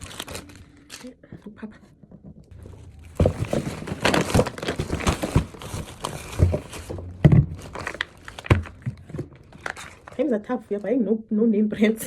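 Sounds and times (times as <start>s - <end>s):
plastic bags crinkling: 0.0s - 1.2s, 2.8s - 10.5s
items knocking on surface: 2.2s - 9.4s.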